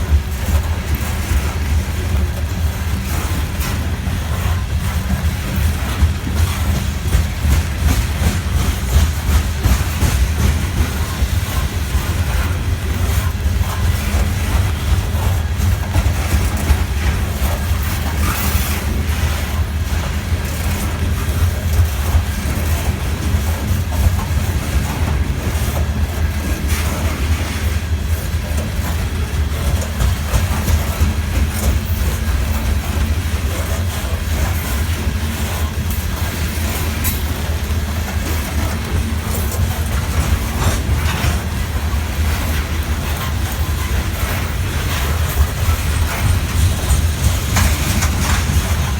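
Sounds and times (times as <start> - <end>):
freight train cars rumbling: 0.0 - 48.9
wheels clicking over rails: 0.0 - 48.9.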